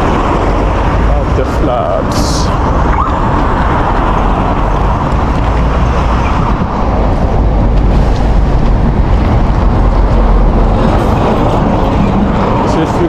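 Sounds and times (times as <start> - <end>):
highway traffic: 0.0 - 13.0.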